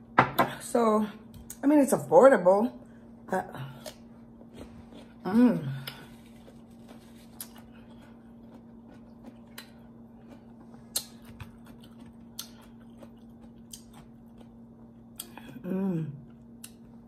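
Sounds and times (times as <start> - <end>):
steady low hum: 0.0 - 17.0
quiet chewing: 3.8 - 15.4.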